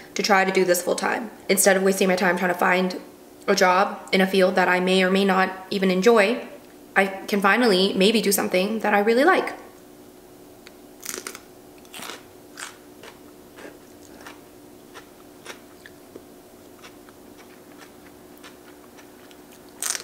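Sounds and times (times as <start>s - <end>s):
crunchy chewing: 11.0s - 20.0s.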